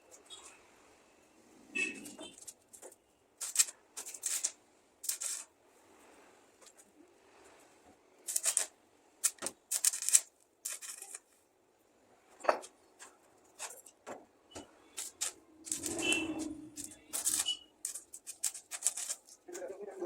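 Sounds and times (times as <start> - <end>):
objects being handled: 1.8 - 5.6, 8.2 - 11.5, 12.3 - 20.0.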